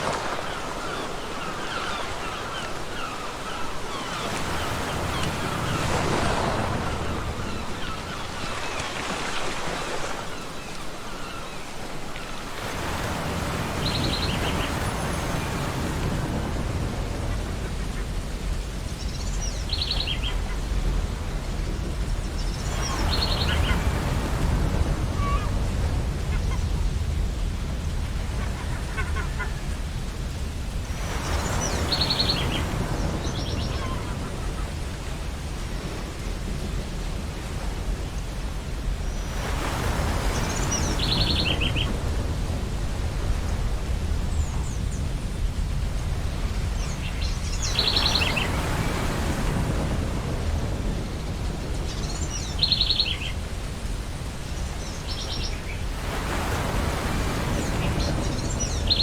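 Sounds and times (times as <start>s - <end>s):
gulls calling: 0.0s - 36.6s, 46.3s - 53.6s
ocean waves washing in: 0.0s - 59.0s.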